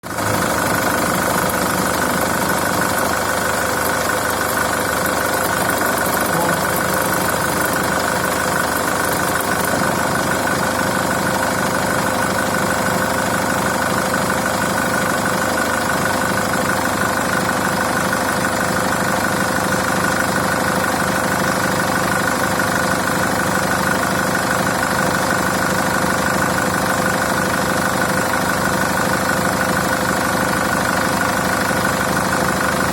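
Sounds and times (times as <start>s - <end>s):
diesel engine idling with knock: 0.0s - 32.9s.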